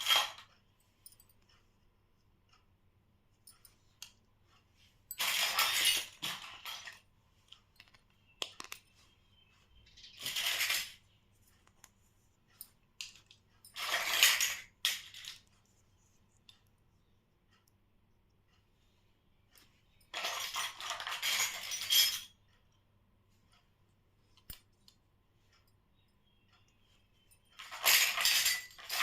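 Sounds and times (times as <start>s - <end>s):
toy pieces clicking and clinking: 5.1s - 8.9s, 9.9s - 11.1s, 12.6s - 15.6s, 20.0s - 22.4s, 27.3s - 29.0s.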